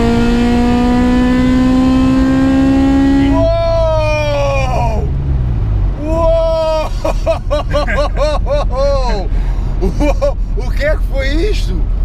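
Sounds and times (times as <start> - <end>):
car engine accelerating: 0.0 - 12.0
man shouting: 3.2 - 5.1, 6.0 - 7.0, 7.7 - 9.3.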